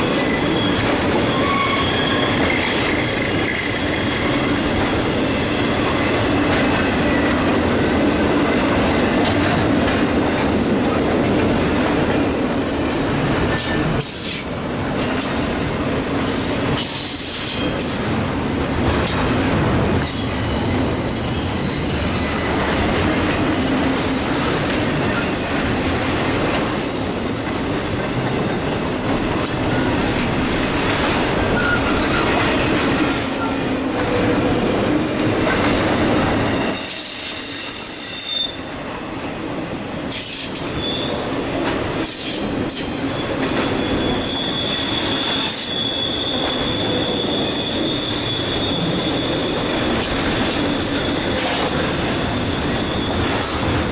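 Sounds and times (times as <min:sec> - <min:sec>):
high-pitched wheel squeal: 0:00.0 - 0:06.4, 0:12.4 - 0:17.3, 0:30.6 - 0:32.4, 0:36.4 - 0:39.0, 0:40.2 - 0:41.2, 0:43.1 - 0:53.9
wheels clickety-clack: 0:00.0 - 0:12.3, 0:13.1 - 0:15.5, 0:29.1 - 0:37.1, 0:41.5 - 0:44.2
freight train wheels rumbling: 0:00.0 - 0:53.9.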